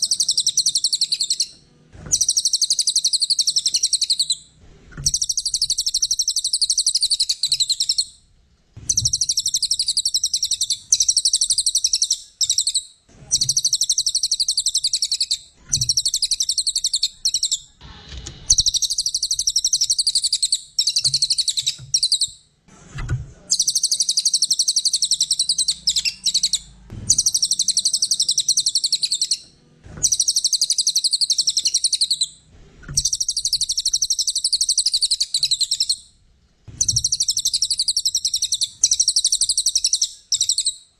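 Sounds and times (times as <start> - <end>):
songbird trilling: 0.0 - 1.5, 2.1 - 4.4, 5.0 - 8.1, 18.5 - 22.3, 23.5 - 29.4, 30.0 - 32.3, 33.0 - 36.0, 36.8 - 40.8.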